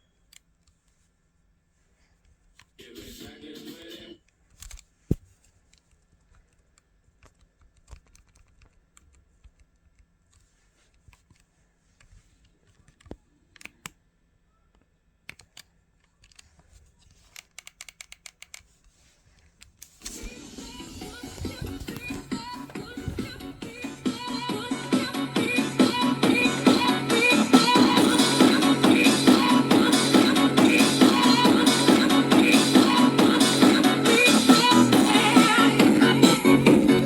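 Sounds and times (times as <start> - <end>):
music: 2.8 - 4.2, 20.0 - 37.0
small clicks and taps: 4.6 - 14.0.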